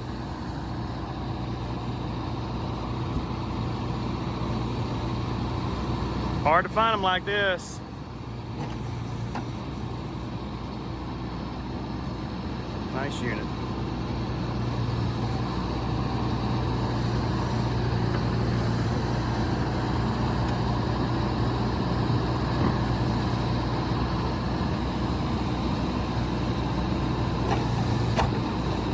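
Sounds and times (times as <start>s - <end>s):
diesel engine running steadily: 0.0s - 28.9s.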